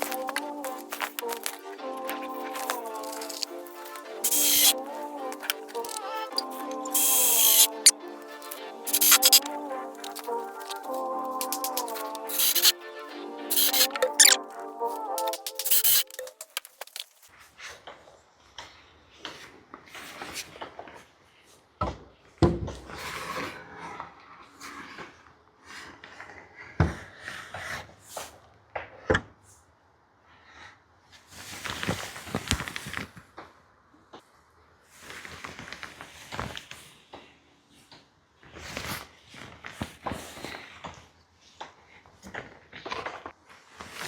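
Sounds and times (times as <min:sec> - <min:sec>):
rustling: 0:00.0 - 0:12.8.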